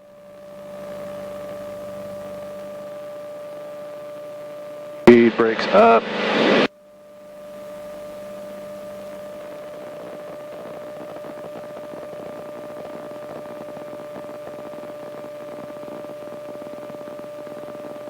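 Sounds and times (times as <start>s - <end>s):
constant hum tone: 5.1s - 6.7s
intercom hiss: 5.1s - 6.7s.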